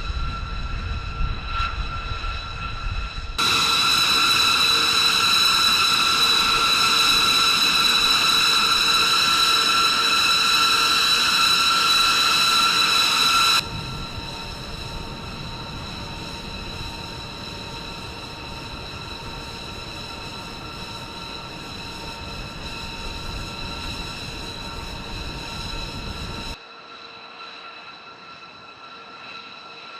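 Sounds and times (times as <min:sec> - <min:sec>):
jet engine whine: 0:00.0 - 0:29.9.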